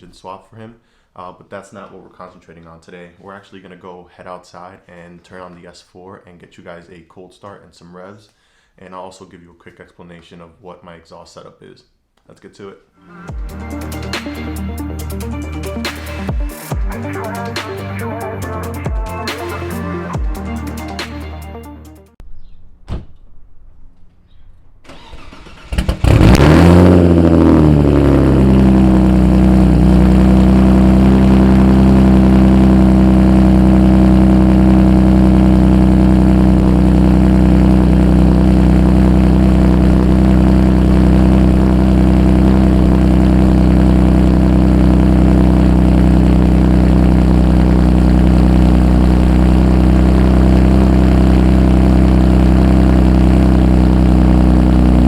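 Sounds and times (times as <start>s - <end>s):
car engine starting and idling: 24.8s - 55.0s.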